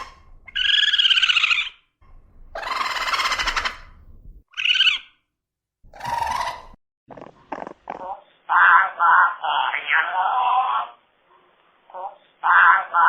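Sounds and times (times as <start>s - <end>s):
animal calls: 0.0s - 1.8s, 2.5s - 3.9s, 5.9s - 11.0s.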